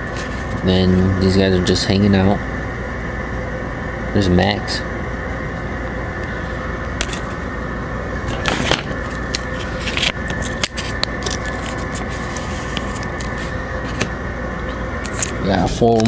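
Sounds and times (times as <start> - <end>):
steady background hum: 0.0 - 16.0
trading cards rustling: 8.3 - 14.1.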